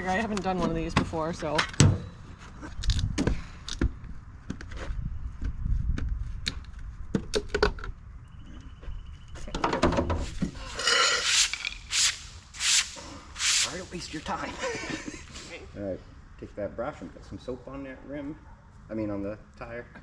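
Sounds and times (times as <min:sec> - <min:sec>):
short rushing bursts of noise: 0:10.8 - 0:14.4.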